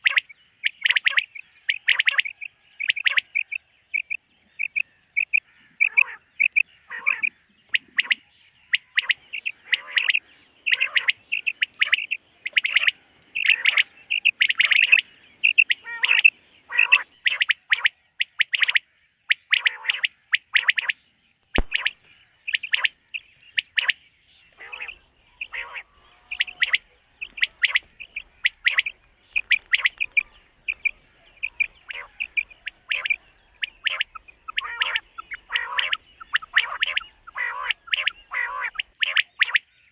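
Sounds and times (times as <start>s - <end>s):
quail calling: 0.0s - 21.0s, 21.6s - 39.9s
sharp click: 21.6s - 22.9s.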